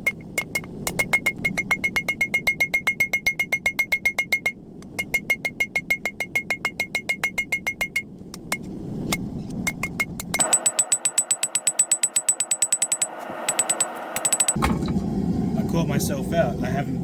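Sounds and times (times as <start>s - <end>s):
hammer ringing on anvil: 10.4s - 14.6s.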